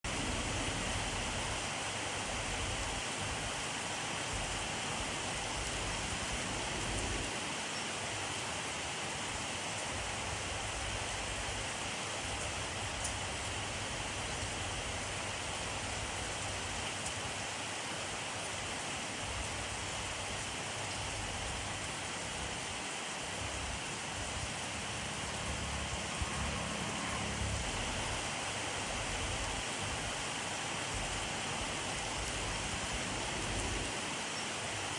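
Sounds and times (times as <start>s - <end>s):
steady rain hiss: 0.1s - 34.9s.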